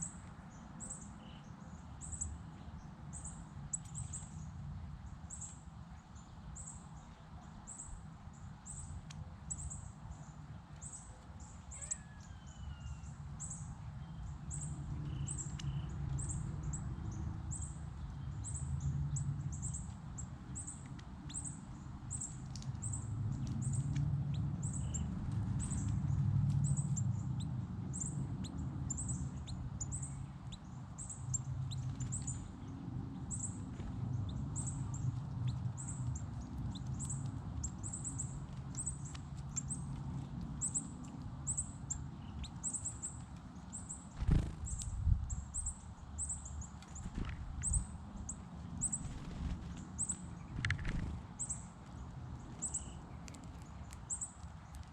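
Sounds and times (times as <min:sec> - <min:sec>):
small bird chirping: 0:11.7 - 0:23.9, 0:24.6 - 0:26.0, 0:26.6 - 0:32.7, 0:33.3 - 0:39.9, 0:40.6 - 0:54.9.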